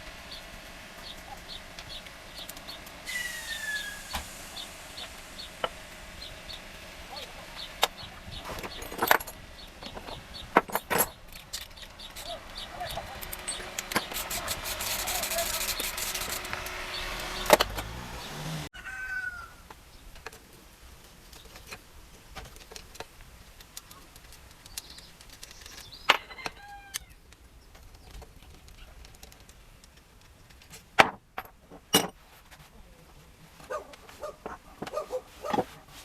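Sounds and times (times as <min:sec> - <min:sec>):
bird chirps: 0:00.3 - 0:06.6, 0:11.7 - 0:13.8
metallic clinks of engine parts: 0:07.6 - 0:16.8, 0:22.4 - 0:27.1, 0:27.7 - 0:32.2.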